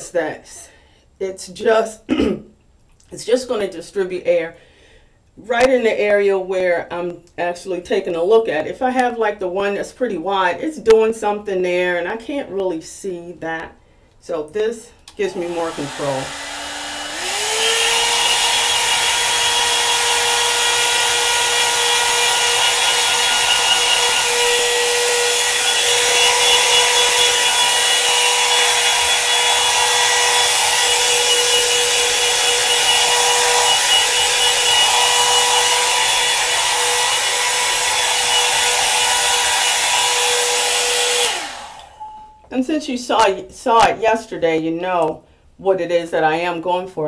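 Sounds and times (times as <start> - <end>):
blow dryer running: 15.1 - 42.1.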